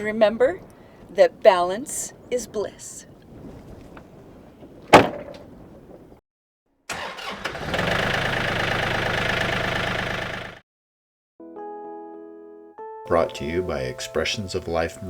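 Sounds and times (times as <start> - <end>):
engine starting and running: 6.9 - 10.6.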